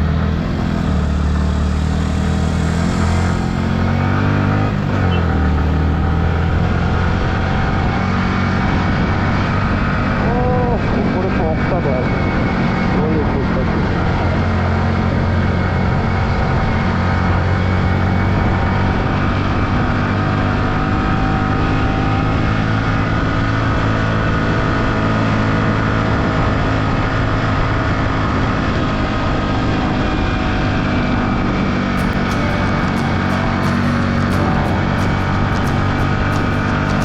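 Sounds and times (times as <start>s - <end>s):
motorcycle engine running: 0.0s - 11.2s, 12.1s - 23.4s, 31.9s - 37.0s
wind and road noise: 0.0s - 37.0s.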